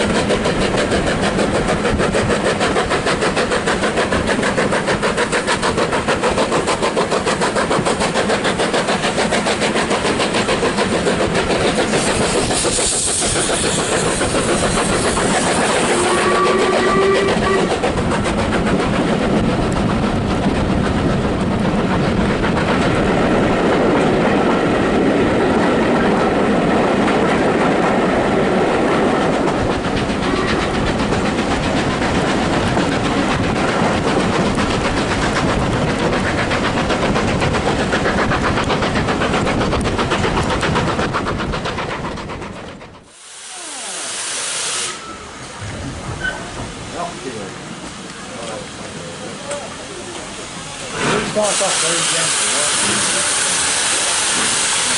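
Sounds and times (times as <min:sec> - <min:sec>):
train rumbling with rail clatter: 0:00.0 - 0:54.9
burst of hiss: 0:06.7 - 0:17.3, 0:43.1 - 0:45.5, 0:50.1 - 0:54.9
short squeal: 0:15.9 - 0:17.7.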